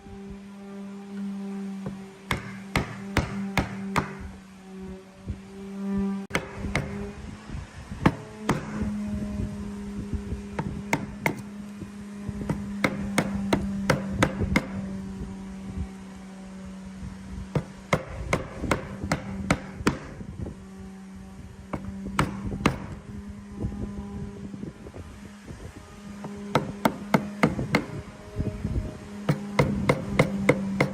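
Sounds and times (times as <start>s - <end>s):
steady hum: 0.0s - 30.9s
hammer blows on wood: 1.8s - 4.4s, 6.3s - 7.2s, 8.0s - 9.0s, 10.6s - 15.0s, 17.5s - 20.4s, 21.6s - 23.0s, 26.2s - 28.1s, 29.2s - 30.9s.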